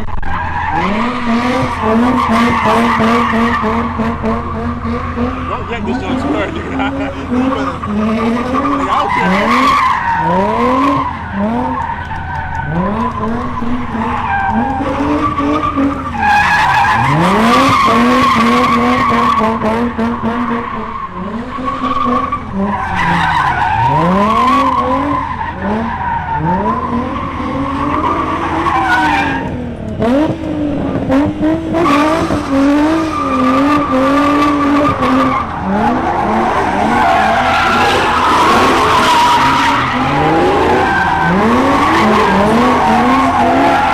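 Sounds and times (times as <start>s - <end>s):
car engine revving: 0.0s - 43.9s
tyres squealing: 1.8s - 12.8s, 33.1s - 43.9s.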